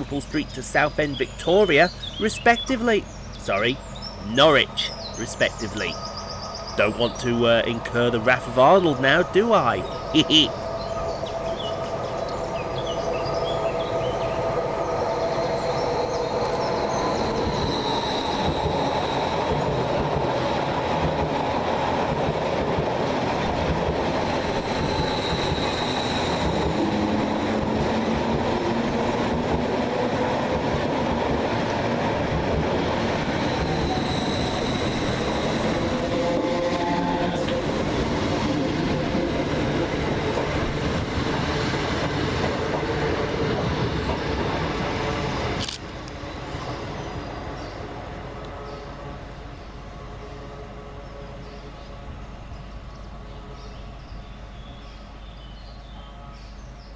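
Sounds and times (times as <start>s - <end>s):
train wheels rumbling on rails: 0.0s - 50.2s
high wheel squeal: 16.9s - 19.6s, 24.4s - 27.4s, 33.4s - 37.4s.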